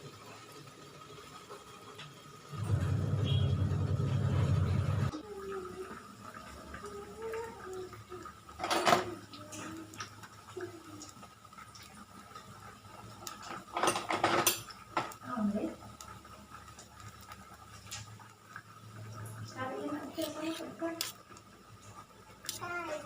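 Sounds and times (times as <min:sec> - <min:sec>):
metal utensils clattering on cookware: 0:08.6 - 0:09.1, 0:13.4 - 0:15.2.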